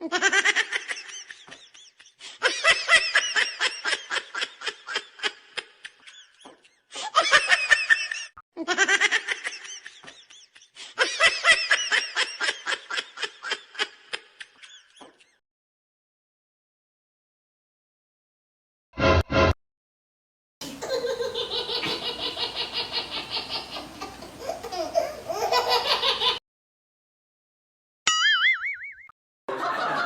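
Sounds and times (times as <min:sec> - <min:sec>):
human laughter: 0:00.0 - 0:15.4, 0:20.6 - 0:26.4, 0:29.5 - 0:30.0.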